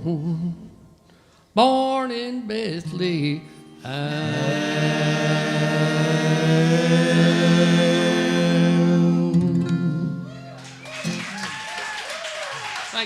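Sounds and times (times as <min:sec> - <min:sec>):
acoustic guitar and strings: 0:02.8 - 0:11.6
voices singing in harmony: 0:03.8 - 0:10.6.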